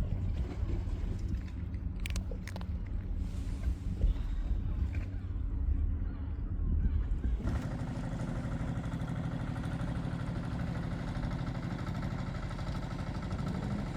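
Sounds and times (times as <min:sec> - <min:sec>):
low wind-like rumble: 0:00.0 - 0:08.8
engine idling: 0:07.4 - 0:13.9.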